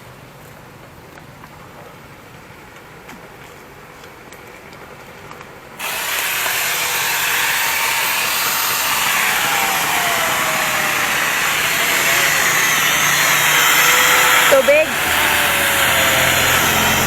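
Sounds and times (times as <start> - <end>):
angle grinder chainsaw cutting branch: 5.8 - 17.0.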